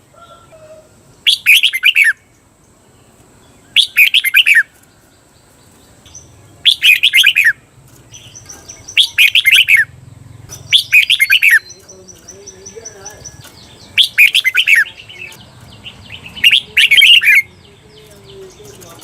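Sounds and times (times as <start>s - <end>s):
bulbul whistled song: 1.2s - 2.3s, 3.6s - 4.7s, 6.1s - 7.6s, 8.2s - 9.9s, 10.7s - 11.9s, 12.9s - 15.4s, 16.0s - 18.1s.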